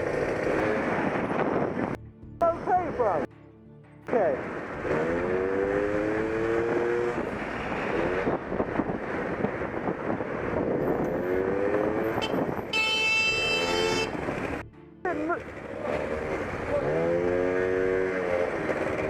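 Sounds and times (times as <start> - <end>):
motorcycle accelerating through gears: 0.0 - 1.9, 4.7 - 12.2, 15.4 - 19.0
wind rushing: 4.5 - 12.7
horn blaring: 12.0 - 14.6.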